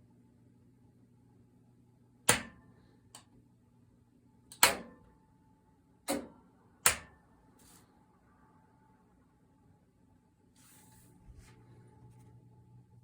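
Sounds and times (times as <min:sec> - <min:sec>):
low steady hum: 0:00.0 - 0:13.0
power supply switch clicks: 0:02.3 - 0:02.6, 0:04.5 - 0:05.0, 0:06.1 - 0:07.2.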